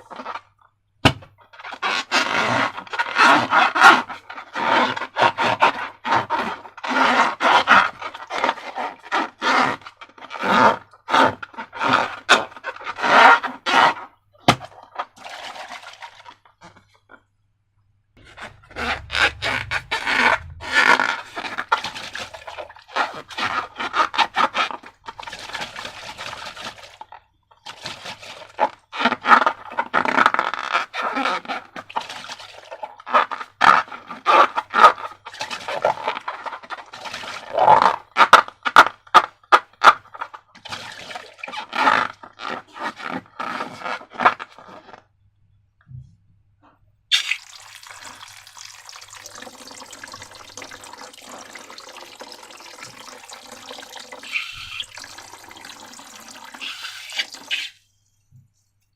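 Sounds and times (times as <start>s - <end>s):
slime scraping and crunching: 18.2s - 26.8s.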